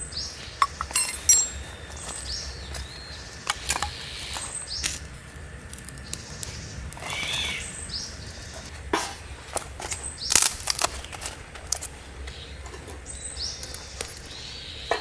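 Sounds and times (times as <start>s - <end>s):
birds giving high calls: 6.0s - 8.8s.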